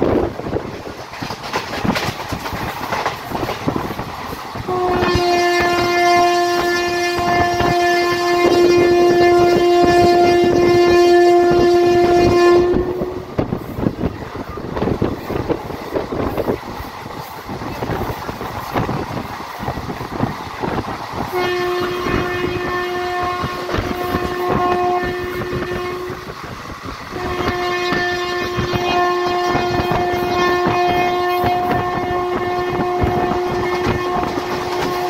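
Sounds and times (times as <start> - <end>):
wheels clattering over rails: 0.7 - 4.8
train horn blast: 4.6 - 13.9, 21.2 - 26.3, 27.1 - 35.0.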